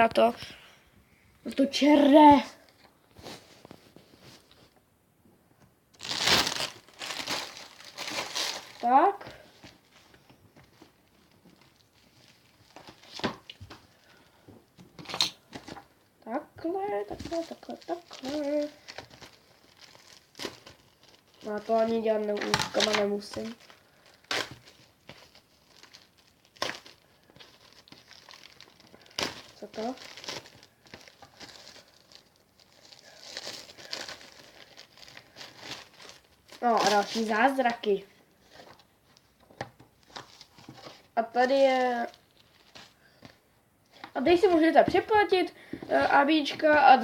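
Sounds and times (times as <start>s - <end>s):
faint handling noise: 2.5s - 4.9s
packaging rustling: 6.0s - 15.9s, 17.0s - 45.1s.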